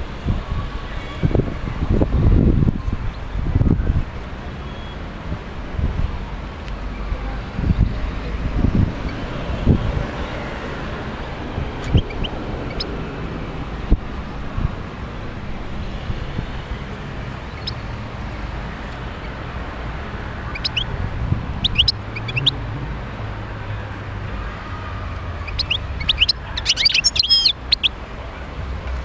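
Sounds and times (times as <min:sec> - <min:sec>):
goldfinch chirping and twittering: 0:11.8 - 0:12.9, 0:20.5 - 0:20.9, 0:21.6 - 0:22.5, 0:25.4 - 0:27.9.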